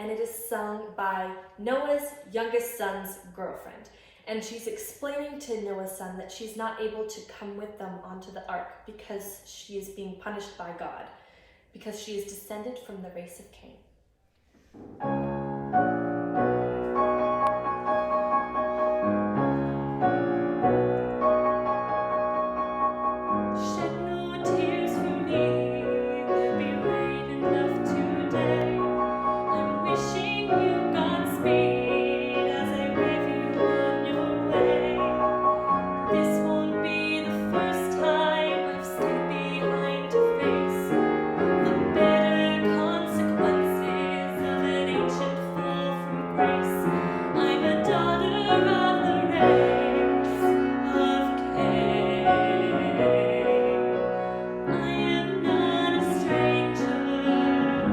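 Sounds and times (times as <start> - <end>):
piano accompaniment: 14.8 - 57.9
woman singing operatic ballad: 23.6 - 57.9.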